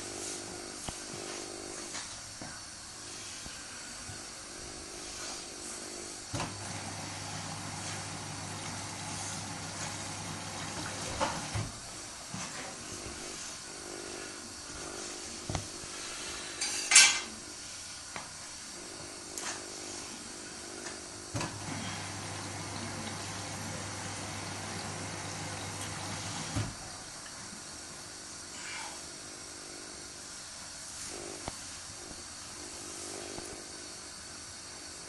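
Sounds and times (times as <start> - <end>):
washing machine motor hum: 5.6 - 16.2, 20.4 - 28.0.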